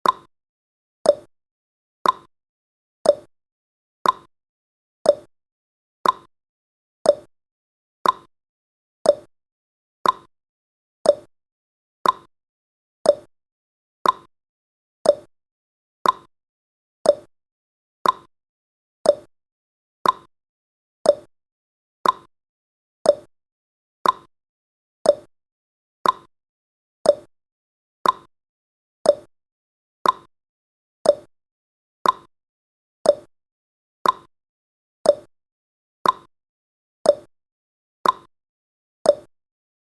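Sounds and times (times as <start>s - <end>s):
countdown timer ticking: 5.1s - 5.3s, 7.1s - 7.3s, 9.1s - 9.3s, 11.1s - 11.3s, 13.1s - 13.3s, 15.1s - 15.3s, 17.1s - 17.3s, 18.0s - 18.3s, 19.1s - 19.3s, 20.0s - 20.3s, 21.1s - 21.3s, 23.1s - 23.3s, 25.1s - 25.3s, 26.0s - 26.3s, 27.1s - 27.3s, 28.0s - 28.3s, 29.1s - 29.3s, 30.0s - 30.3s, 31.1s - 31.3s, 32.0s - 32.3s, 33.1s - 33.3s, 34.0s - 34.3s, 35.1s - 35.3s, 36.0s - 36.3s, 37.1s - 37.3s, 38.0s - 38.3s, 39.1s - 39.3s.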